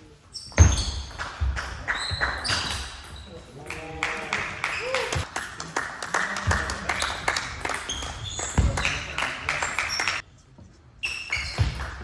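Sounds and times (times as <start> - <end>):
shoe squeaks: 0.2 - 1.2, 1.8 - 3.5, 7.9 - 9.0, 9.6 - 10.2, 10.9 - 11.8.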